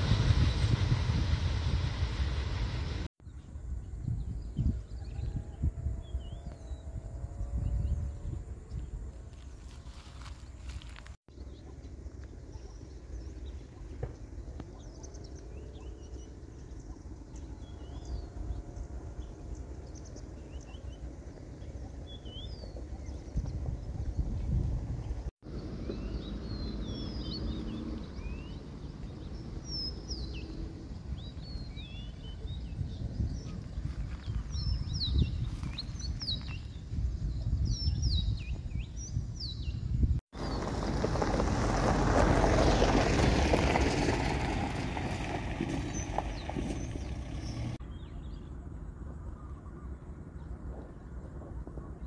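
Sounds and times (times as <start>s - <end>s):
broad rushing noise: 0.0s - 3.1s.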